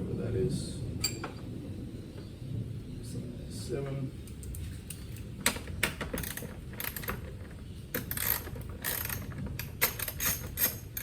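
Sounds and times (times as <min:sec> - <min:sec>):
hand tool metallic clicks and rattles: 0:05.8 - 0:11.0.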